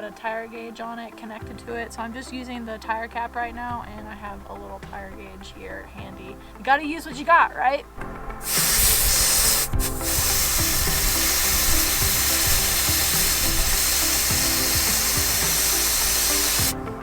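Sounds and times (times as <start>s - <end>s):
air hissing from tire valve: 8.4s - 16.8s.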